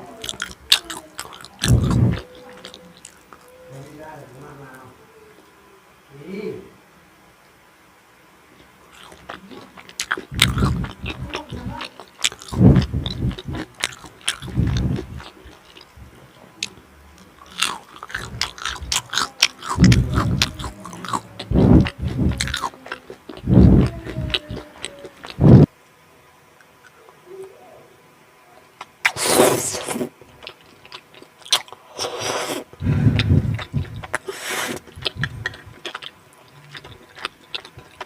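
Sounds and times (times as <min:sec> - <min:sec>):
chewing food: 0:00.2 - 0:03.9, 0:08.6 - 0:25.7, 0:28.8 - 0:38.0.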